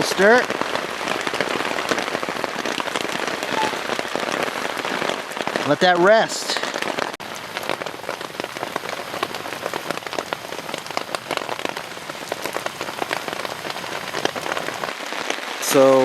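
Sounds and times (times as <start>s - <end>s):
rain falling on a tarp: 0.0s - 16.0s.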